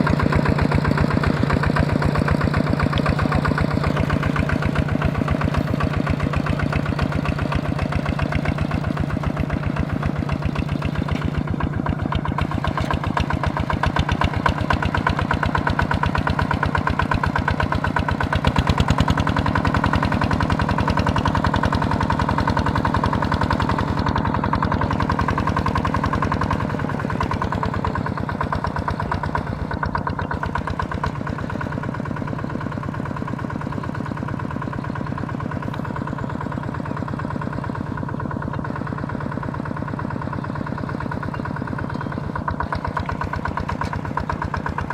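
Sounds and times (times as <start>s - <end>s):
small tractor engine running: 0.0s - 44.9s.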